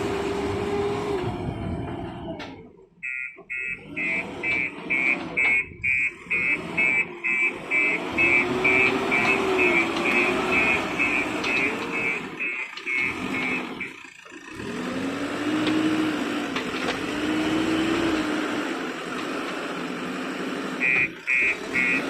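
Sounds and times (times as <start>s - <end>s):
bulldozer diesel engine under load: 0.0s - 22.0s
reversing alarm beeping: 3.0s - 14.1s, 20.8s - 22.0s.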